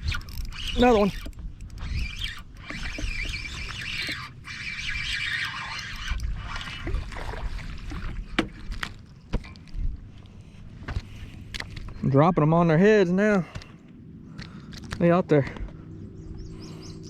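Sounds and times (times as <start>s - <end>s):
fishing reel being cranked: 0.0s - 6.9s.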